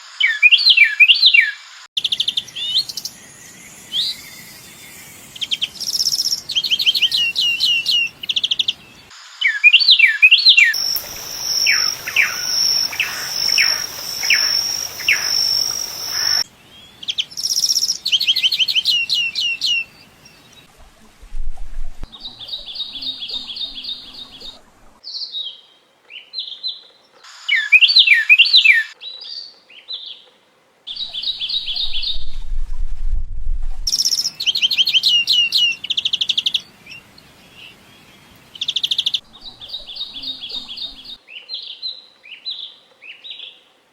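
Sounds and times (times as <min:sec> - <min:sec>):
small birds chirping: 0:00.2 - 0:30.3, 0:30.9 - 0:32.6, 0:33.9 - 0:43.6
bird high steady tone: 0:00.3 - 0:20.7, 0:21.3 - 0:25.0, 0:30.9 - 0:41.2
bird rattling trill: 0:10.8 - 0:16.4.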